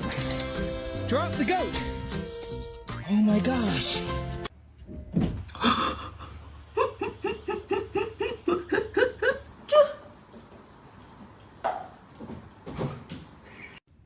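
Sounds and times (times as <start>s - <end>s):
person laughing: 5.5s - 9.9s.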